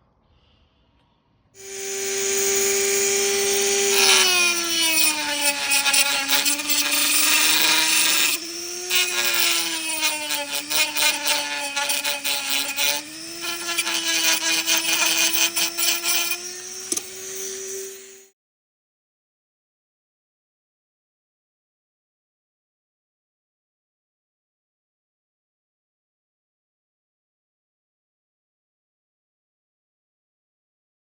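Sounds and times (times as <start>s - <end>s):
power tool motor whining: 1.6s - 18.3s.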